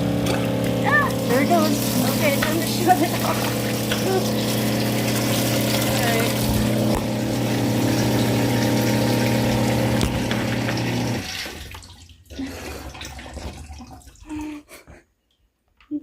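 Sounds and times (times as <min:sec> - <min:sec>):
water rushing through hose: 0:00.0 - 0:14.4
water pump humming: 0:00.0 - 0:14.6
small knocks and drips: 0:13.0 - 0:14.3.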